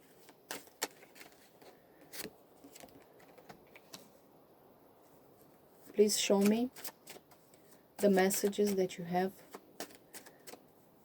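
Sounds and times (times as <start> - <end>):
cards being shuffled: 0.1 - 4.1, 5.9 - 10.7.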